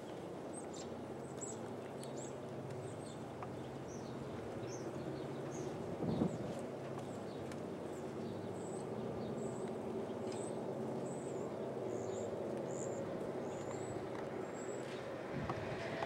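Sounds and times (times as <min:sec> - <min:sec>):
diesel locomotive engine droning: 0:09.3 - 0:16.0.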